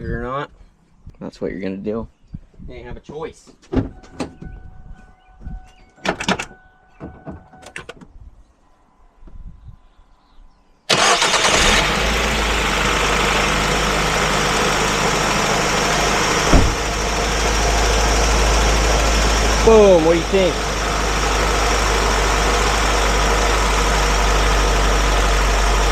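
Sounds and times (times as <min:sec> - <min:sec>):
car engine starting and idling: 0:10.9 - 0:25.9.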